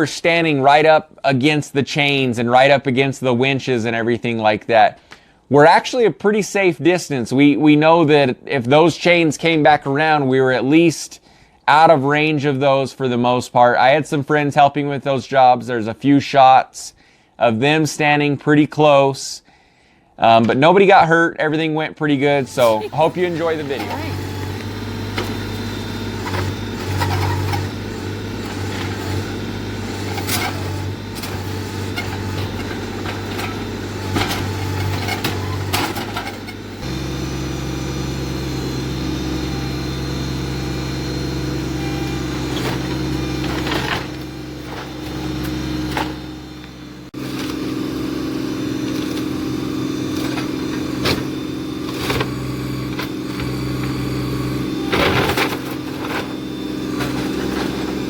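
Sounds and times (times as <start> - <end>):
diesel tractor engine running: 22.1 - 58.0.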